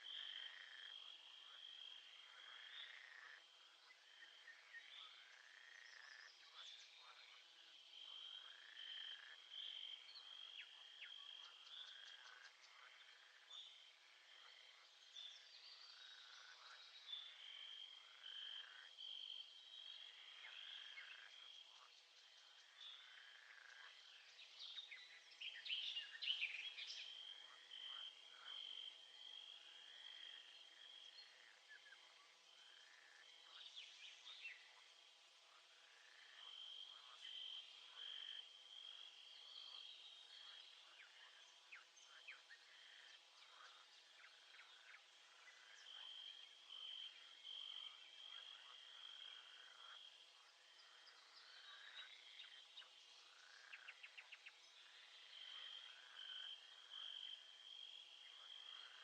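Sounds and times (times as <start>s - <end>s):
frogs calling in chorus: 0.0s - 6.4s, 7.0s - 14.8s, 16.0s - 21.9s, 26.4s - 35.0s.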